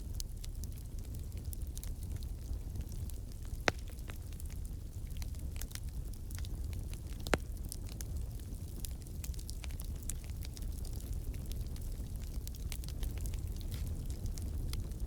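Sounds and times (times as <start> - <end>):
wood fire crackling: 0.0 - 15.0
fire popping: 0.1 - 15.0.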